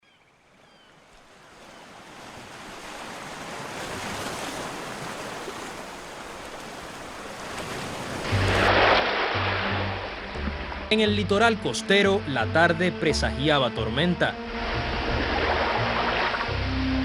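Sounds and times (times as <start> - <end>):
ocean surf on shore: 0.6 - 11.0, 14.3 - 17.0
low music notes: 8.4 - 17.0.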